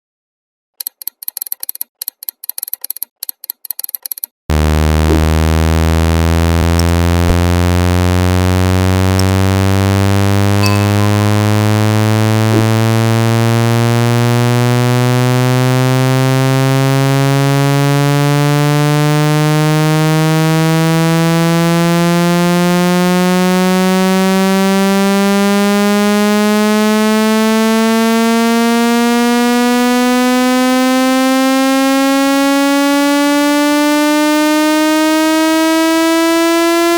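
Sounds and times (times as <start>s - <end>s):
buzzy synthesized rising tone: 4.5s - 36.9s
rapid electronic clicking: 6.5s - 9.8s.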